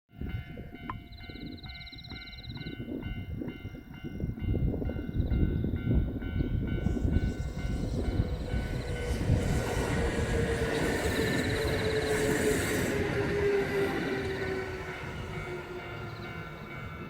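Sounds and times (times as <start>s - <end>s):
electric train rumbling: 0.1s - 17.0s
level-crossing bell ringing: 0.1s - 17.0s.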